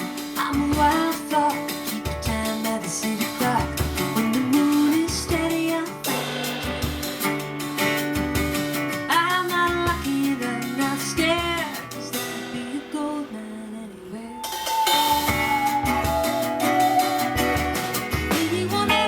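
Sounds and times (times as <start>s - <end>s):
woman singing: 0.0s - 7.1s, 9.1s - 19.0s
acoustic guitar strumming: 0.0s - 19.0s.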